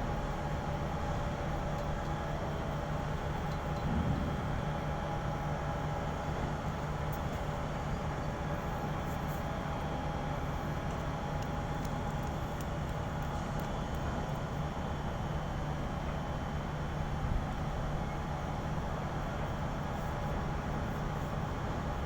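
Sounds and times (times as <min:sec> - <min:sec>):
ship machinery droning: 0:02.4 - 0:09.6.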